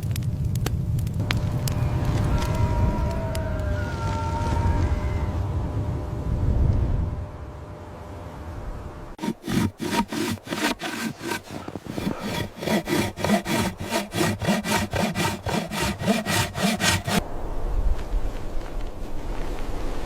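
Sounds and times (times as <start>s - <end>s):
hand saw cutting wood: 9.2s - 17.2s
low wind rumble: 17.2s - 20.0s.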